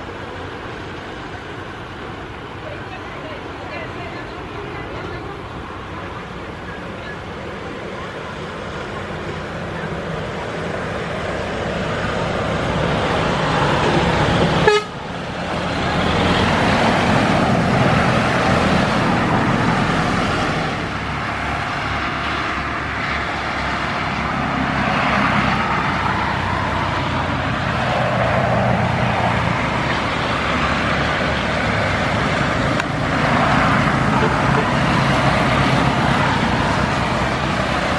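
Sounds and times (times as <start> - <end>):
jet engines roaring: 0.0 - 37.9.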